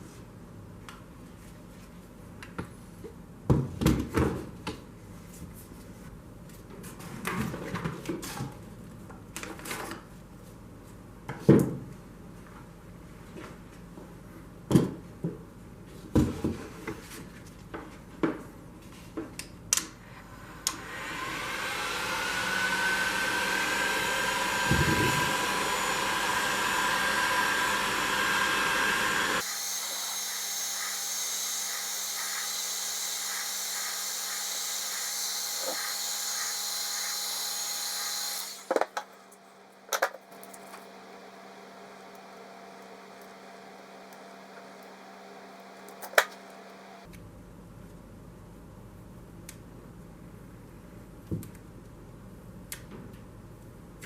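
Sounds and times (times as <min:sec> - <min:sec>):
tire inflator motor whining: 0:20.2 - 0:39.0.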